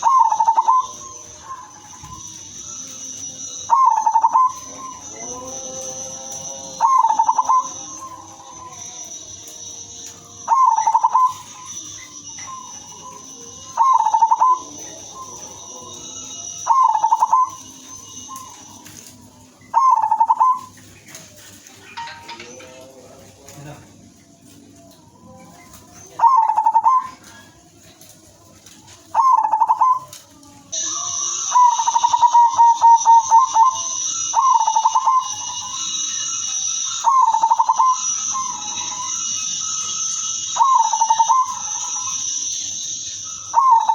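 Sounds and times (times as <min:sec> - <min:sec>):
dove stuttering coos: 0:00.0 - 0:02.6, 0:03.4 - 0:08.8, 0:10.4 - 0:15.7, 0:16.4 - 0:21.6, 0:25.6 - 0:28.4, 0:29.0 - 0:30.2, 0:31.4 - 0:43.9
faint high whine: 0:00.0 - 0:24.1, 0:29.2 - 0:43.9
steady high-pitched buzz: 0:00.0 - 0:43.9.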